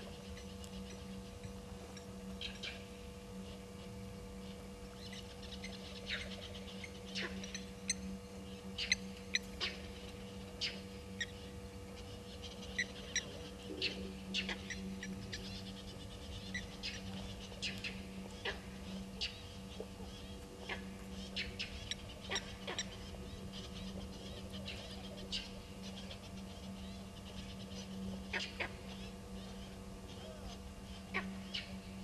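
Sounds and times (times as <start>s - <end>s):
birds chirping: 0.0s - 32.0s
steady low hum: 0.0s - 32.0s.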